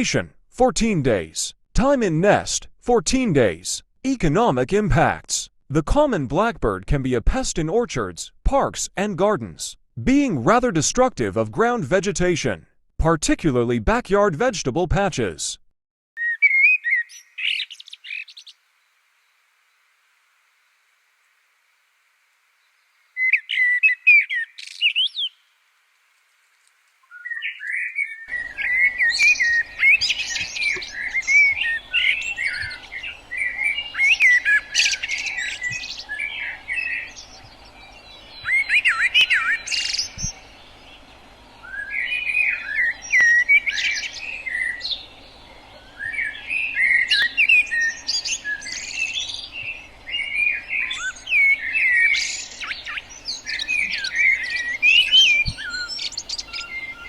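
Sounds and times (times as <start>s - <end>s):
blackbird singing: 16.2s - 18.6s, 22.6s - 25.4s, 27.0s - 57.0s
faint background hiss: 17.5s - 23.4s.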